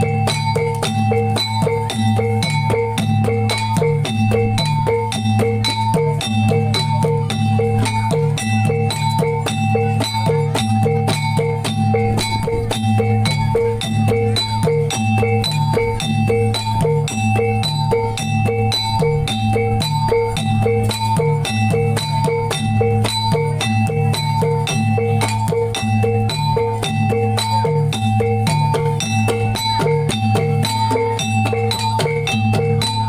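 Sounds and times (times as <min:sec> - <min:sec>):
drum strokes: 0:00.0 - 0:33.0
struck metal gamelan notes: 0:00.0 - 0:33.0.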